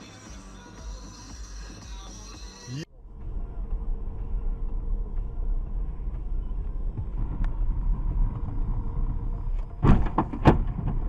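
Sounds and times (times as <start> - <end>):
car driving low rumble: 2.8 - 11.0
sharp thump: 9.8 - 11.0.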